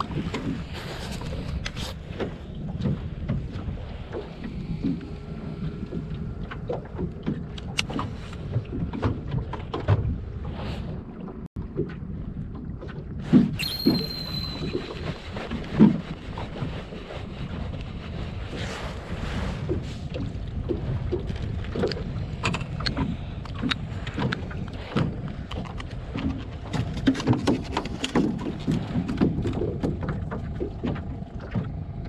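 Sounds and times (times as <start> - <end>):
knocks and clicks on boat: 0.0 - 14.0, 19.6 - 32.0
water slapping on hull: 0.0 - 14.0, 14.6 - 32.0
wind on microphone: 0.0 - 32.0
brief high tone: 13.6 - 15.2.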